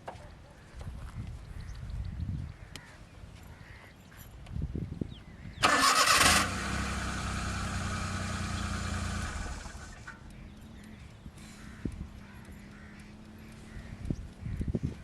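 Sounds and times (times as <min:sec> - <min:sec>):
car engine cranking and starting: 0:05.6 - 0:10.2.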